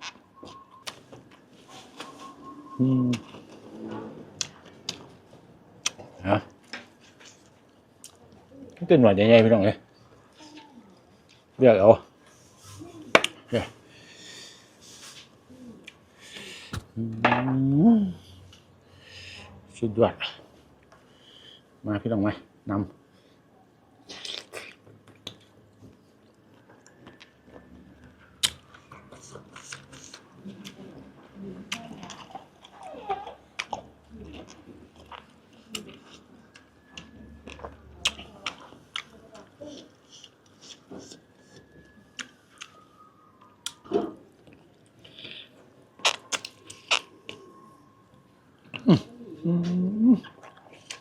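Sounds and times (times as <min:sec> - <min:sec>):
wet chewing: 0:28.3 - 0:31.0, 0:31.6 - 0:42.8, 0:43.4 - 0:47.6, 0:50.2 - 0:51.0
lip smacks: 0:28.4 - 0:30.8, 0:46.0 - 0:47.4, 0:50.2 - 0:51.0
wet mouth sounds: 0:46.0 - 0:47.4
biting and chewing: 0:46.0 - 0:47.5.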